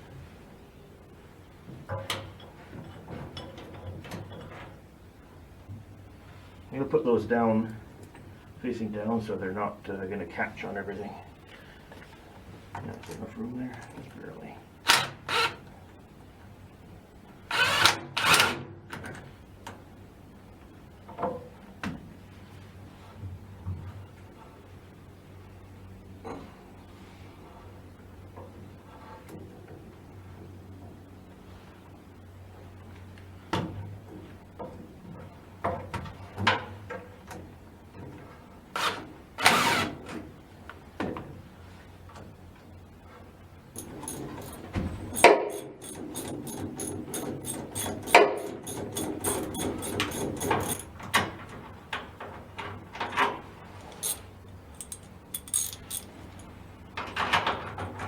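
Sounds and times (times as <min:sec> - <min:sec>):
steady low hum: 0:42.8 - 0:51.1, 0:53.5 - 0:56.9
metal scraping: 0:43.8 - 0:51.0, 0:53.8 - 0:56.4
tools knocking and clicking: 0:43.8 - 0:51.2, 0:53.1 - 0:56.5.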